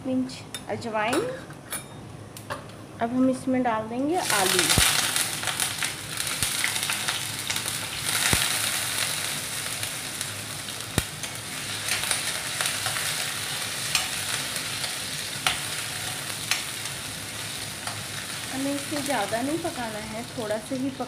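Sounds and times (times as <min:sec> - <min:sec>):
potatoes sizzling in hot oil: 0:04.2 - 0:21.0.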